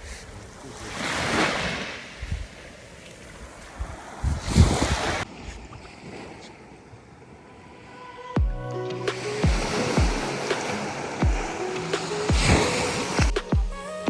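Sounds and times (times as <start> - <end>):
wind rumbling on microphone: 0.0 - 8.0
waves breaking on a beach: 0.0 - 14.0.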